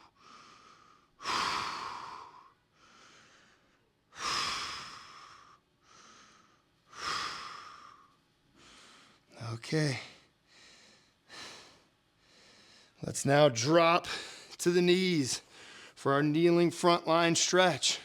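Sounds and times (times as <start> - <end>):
quiet inhales: 0.2 - 9.3, 10.0 - 13.0, 14.1 - 14.6, 15.4 - 16.0.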